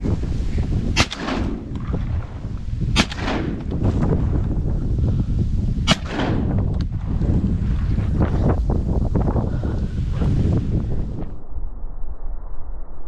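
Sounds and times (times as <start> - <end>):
wind rumbling on microphone: 0.0 - 13.0
shotgun shots with echo: 0.9 - 1.9, 2.9 - 3.7, 5.8 - 6.6.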